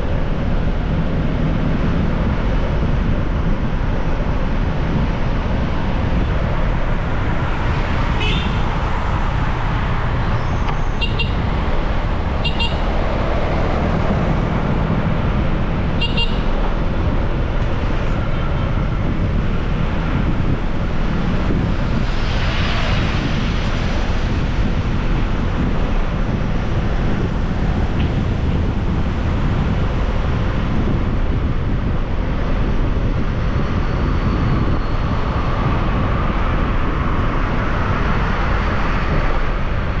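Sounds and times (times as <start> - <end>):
wind and motorbike road noise: 0.0 - 40.0
vehicle horn beeps: 8.2 - 8.6, 11.0 - 11.4, 12.4 - 12.9, 16.0 - 16.6.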